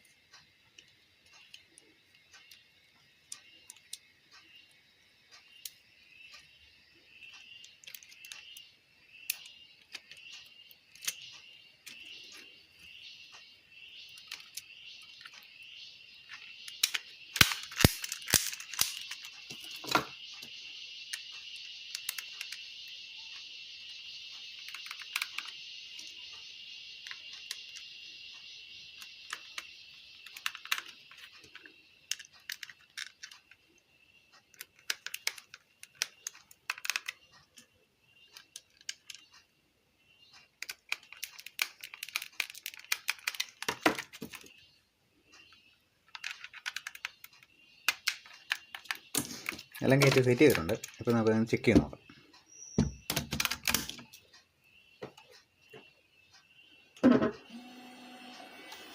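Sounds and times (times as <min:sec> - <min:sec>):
plastic and metal parts clicking: 0:07.3 - 0:12.3, 0:14.1 - 0:15.5, 0:16.3 - 0:20.5, 0:21.1 - 0:22.6, 0:24.6 - 0:26.1, 0:28.9 - 0:33.6, 0:34.3 - 0:37.7, 0:38.3 - 0:39.4, 0:40.5 - 0:44.6, 0:46.1 - 0:51.9, 0:53.1 - 0:54.2.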